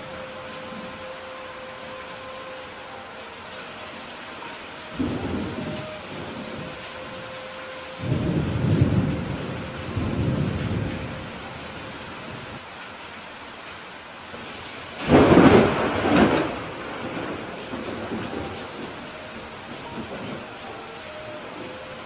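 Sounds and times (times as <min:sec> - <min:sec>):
steady rain: 0:00.0 - 0:22.0
thunder rumbling: 0:04.8 - 0:12.6, 0:15.0 - 0:21.8
sharp thunderclap: 0:15.0 - 0:18.2.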